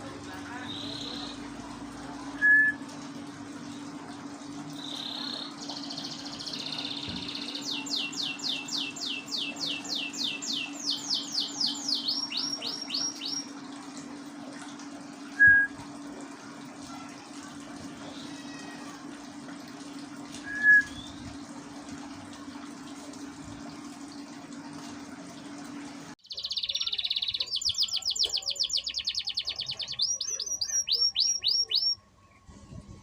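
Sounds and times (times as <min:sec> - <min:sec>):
canary singing: 0:04.8 - 0:13.5, 0:26.2 - 0:32.0.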